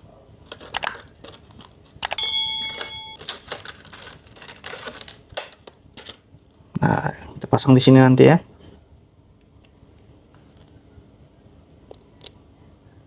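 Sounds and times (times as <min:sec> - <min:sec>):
handling clicks and rustling: 0:00.4 - 0:06.2
ringing tone: 0:02.1 - 0:03.2.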